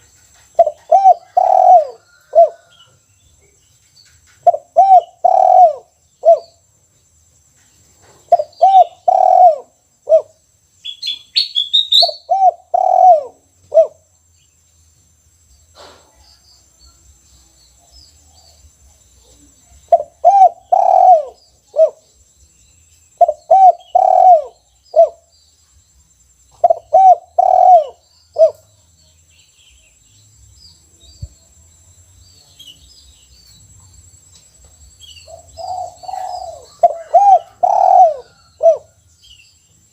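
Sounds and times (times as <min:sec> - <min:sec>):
small bird chirping: 0:00.0 - 0:39.9
dove cooing: 0:00.6 - 0:02.8, 0:04.4 - 0:06.6, 0:08.3 - 0:10.4, 0:11.9 - 0:14.0, 0:19.9 - 0:22.0, 0:23.2 - 0:25.3, 0:26.6 - 0:28.7, 0:35.2 - 0:39.0.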